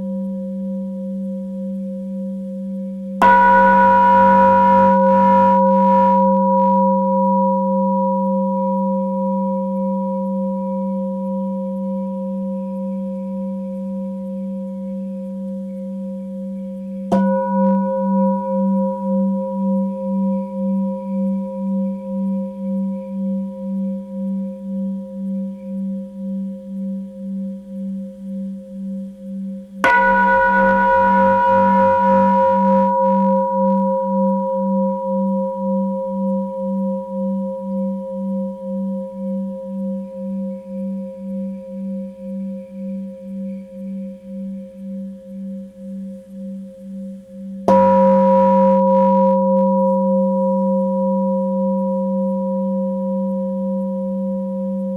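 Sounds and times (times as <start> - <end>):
singing bowl strike: 3.2 - 9.2, 17.1 - 19.4, 29.8 - 34.8, 47.7 - 51.6
singing bowl ringing: 3.2 - 12.6, 17.1 - 22.1, 29.8 - 40.0, 47.7 - 54.9.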